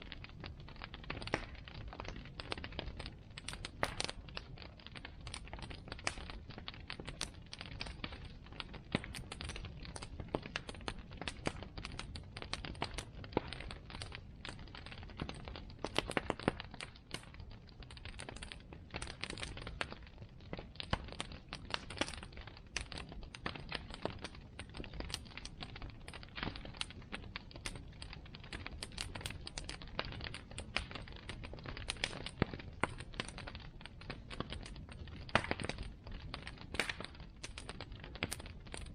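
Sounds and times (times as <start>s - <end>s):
bonfire crackling: 0.0s - 38.9s.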